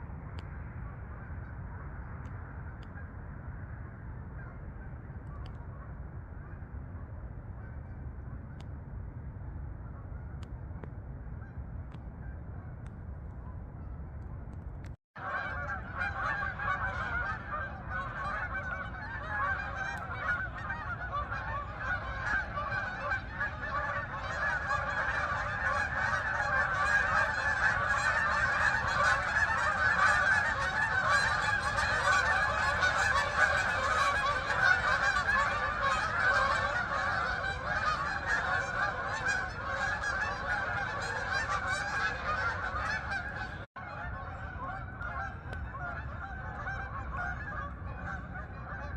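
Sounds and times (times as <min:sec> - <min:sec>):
geese honking: 0:15.2 - 0:48.9.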